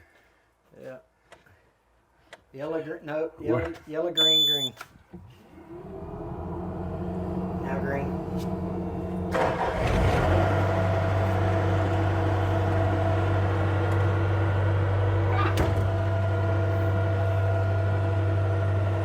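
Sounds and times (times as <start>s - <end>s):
hydraulic drone: 5.6s - 19.0s
skid steer engine running: 5.6s - 19.0s.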